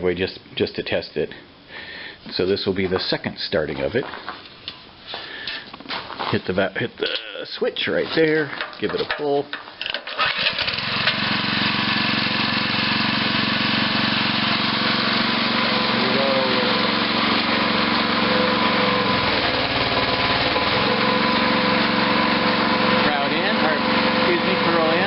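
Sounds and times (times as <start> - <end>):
small engine running steadily: 10.4 - 25.0.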